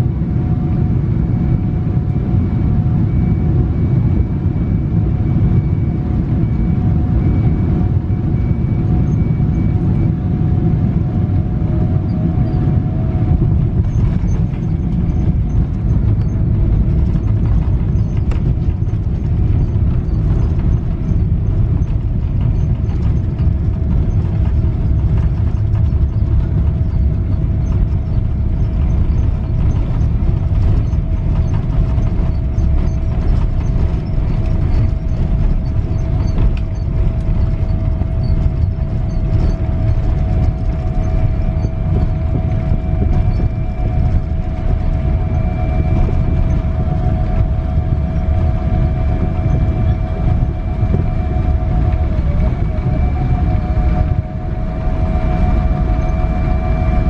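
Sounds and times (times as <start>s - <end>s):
airplane cabin rumble: 0.0s - 57.0s
faint jet engine whine: 0.0s - 57.0s.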